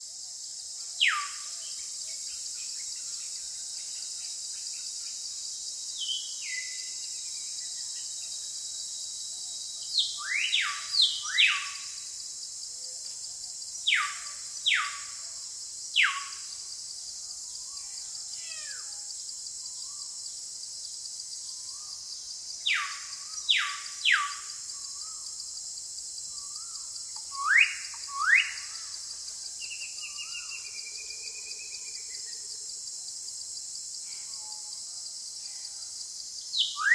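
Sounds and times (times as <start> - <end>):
high-pitched insect drone: 1.0 - 20.4, 21.0 - 32.8
bird whistling calls: 27.3 - 28.7, 36.6 - 36.9.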